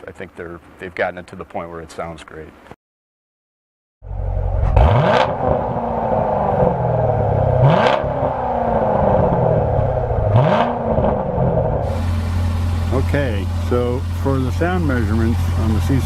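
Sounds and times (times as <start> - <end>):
car engine revving: 4.1 - 16.0.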